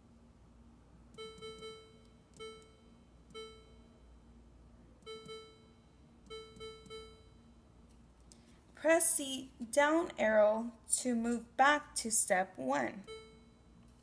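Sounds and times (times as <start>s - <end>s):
control panel key beeps: 1.2s - 3.8s, 5.0s - 5.7s, 6.3s - 7.3s.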